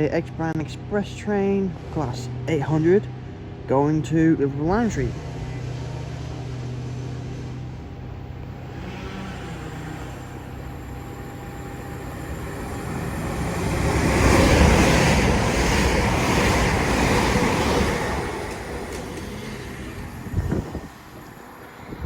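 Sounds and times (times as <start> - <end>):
train passing at speed: 0.0 - 22.0.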